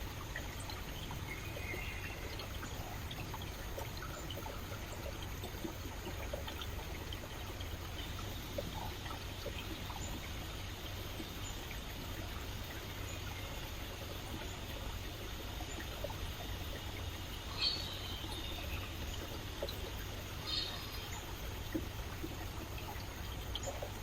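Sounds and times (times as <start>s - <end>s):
stream water trickling: 0.0s - 24.0s
high bird calls: 17.5s - 18.8s, 20.4s - 21.2s.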